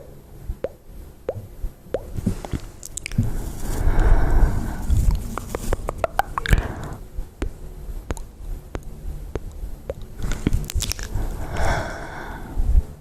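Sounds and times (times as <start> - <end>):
wet mouth clicks and smacks: 2.0 - 3.3, 5.1 - 6.6, 8.1 - 11.2.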